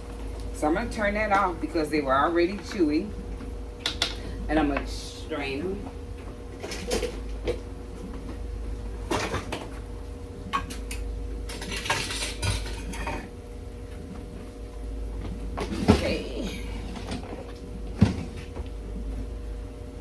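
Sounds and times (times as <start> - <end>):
steady hum: 0.0 - 20.0
pots and pans clinking: 10.5 - 13.3.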